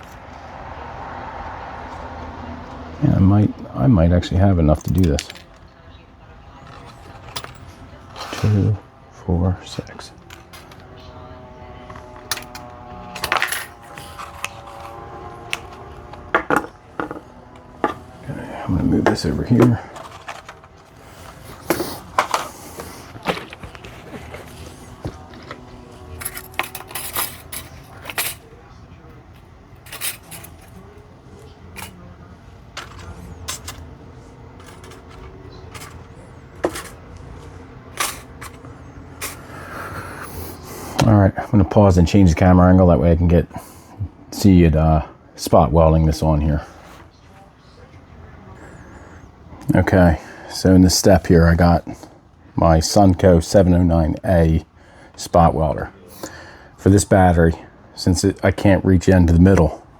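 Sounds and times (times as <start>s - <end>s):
faint low hum: 0.0s - 55.1s
small parts clicking and tapping: 34.6s - 39.4s.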